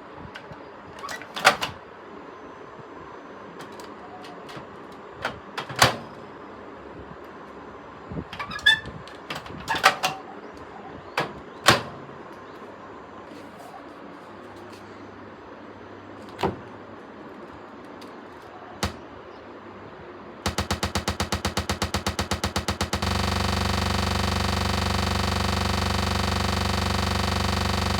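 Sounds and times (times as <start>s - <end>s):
sharp knocks and clicks: 18.8s - 19.0s, 20.5s - 27.9s.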